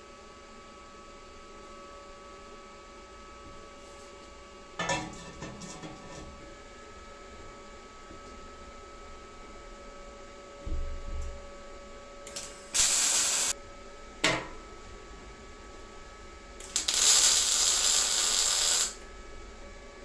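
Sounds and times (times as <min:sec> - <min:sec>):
hiss bursts: 0:12.3 - 0:13.5, 0:16.7 - 0:19.0.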